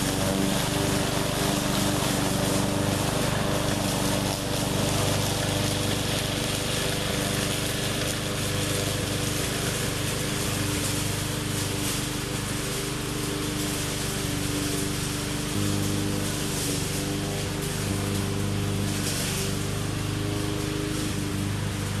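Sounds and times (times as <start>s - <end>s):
push mower engine running: 0.0s - 22.0s.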